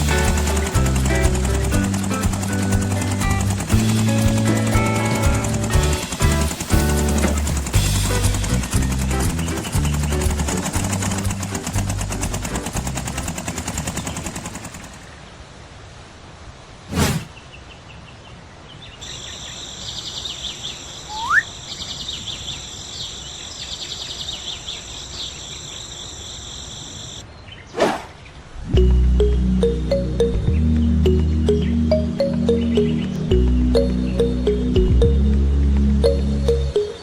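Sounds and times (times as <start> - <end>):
fast mechanical clatter: 0.0 - 15.1
whoosh: 16.9 - 17.3
high pulsing chirp: 19.0 - 23.2, 28.7 - 37.0
short rising whistle: 21.1 - 21.5.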